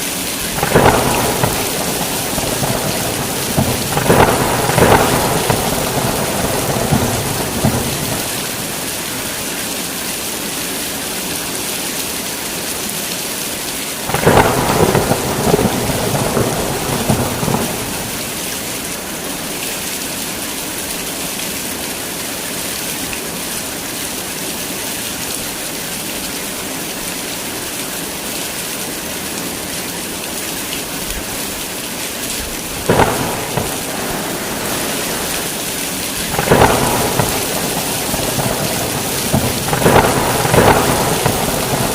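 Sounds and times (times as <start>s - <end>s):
heavy rain falling: 0.0s - 41.9s
rumbling thunder: 0.6s - 8.9s, 14.1s - 18.4s, 32.8s - 41.9s
sharp thunder crack: 0.6s - 8.9s, 14.1s - 18.4s, 32.9s - 41.9s.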